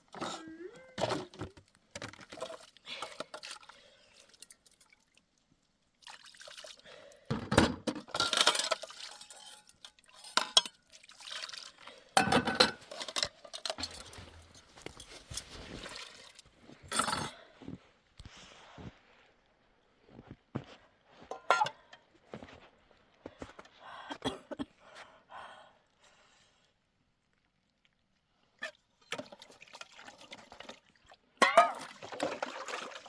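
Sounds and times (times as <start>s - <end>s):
water pouring and splashing: 0.2s - 7.0s, 8.3s - 16.7s, 29.0s - 33.0s.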